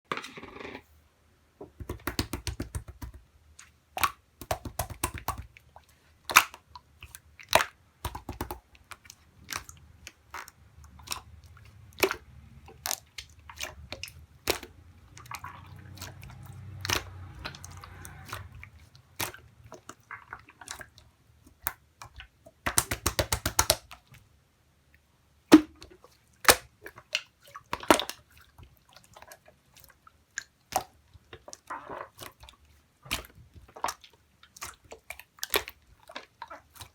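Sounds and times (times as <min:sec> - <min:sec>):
slime squeezed wet clicks: 0:14.4 - 0:18.5.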